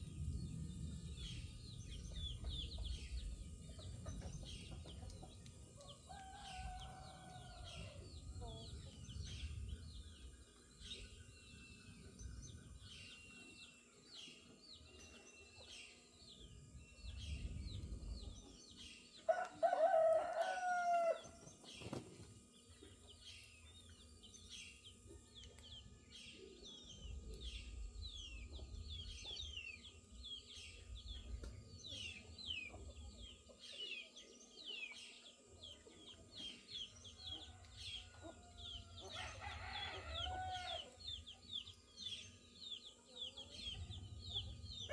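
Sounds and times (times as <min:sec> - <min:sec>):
small birds chirping: 0:00.0 - 0:44.9
rooster crowing: 0:06.1 - 0:08.0, 0:19.3 - 0:21.4, 0:37.5 - 0:41.0.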